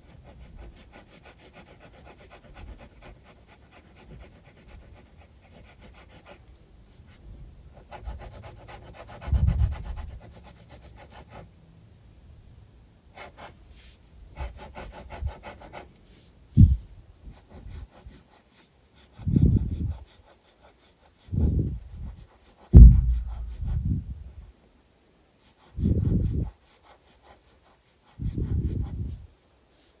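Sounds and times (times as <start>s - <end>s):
pencil scratching on paper: 0.0s - 11.5s, 13.2s - 24.7s, 25.4s - 30.0s
dull low bumps: 16.6s - 16.9s, 22.7s - 24.4s.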